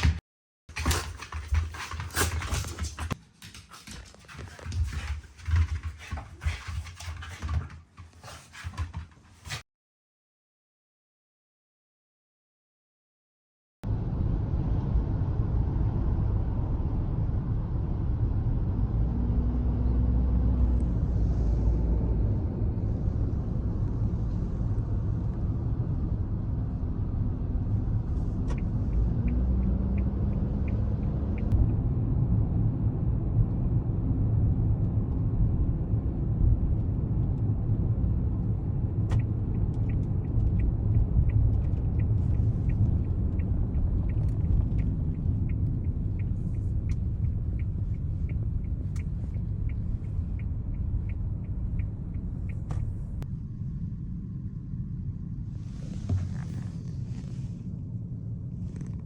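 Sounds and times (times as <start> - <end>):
car road rumble: 13.9 - 59.0.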